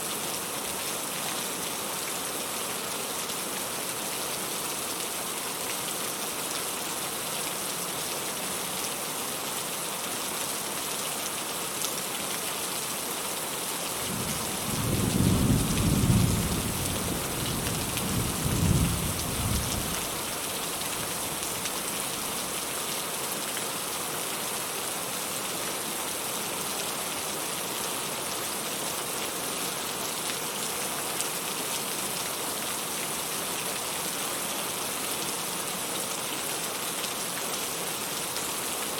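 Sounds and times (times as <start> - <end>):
steady rain falling: 0.0 - 38.9
thunder rumbling: 14.1 - 17.2.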